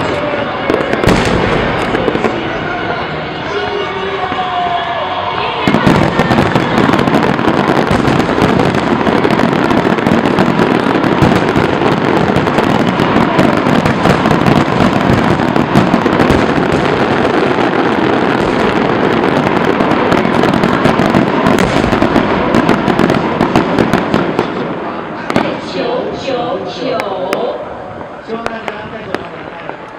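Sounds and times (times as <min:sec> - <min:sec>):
fireworks crackling and banging: 0:00.0 - 0:29.9.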